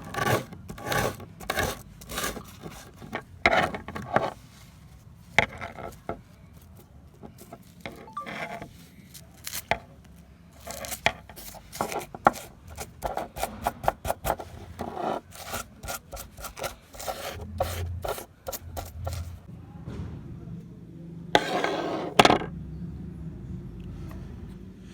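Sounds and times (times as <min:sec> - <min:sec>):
rubbing and scraping on metal: 0:00.0 - 0:09.8, 0:10.6 - 0:19.5, 0:21.4 - 0:22.5.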